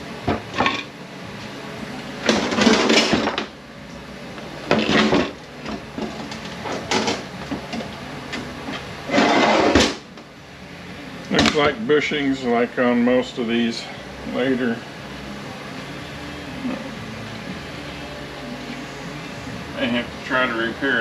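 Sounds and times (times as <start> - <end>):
metal parts clattering and scraping: 2.2 - 3.4, 4.7 - 5.4, 6.0 - 7.2, 9.1 - 9.8.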